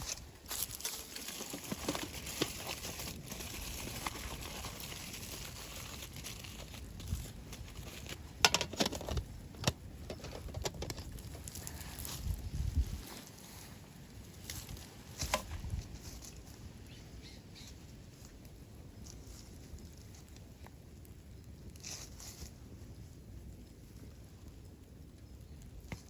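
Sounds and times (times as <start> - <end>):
aluminium foil crinkling: 0.0 - 16.8.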